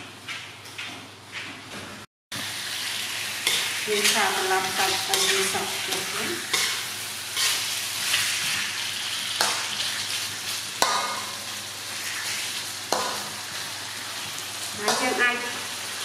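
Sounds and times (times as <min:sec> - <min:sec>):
fish sizzling in a wok: 0:02.3 - 0:16.0
metal ladle scraping a wok: 0:03.4 - 0:08.8.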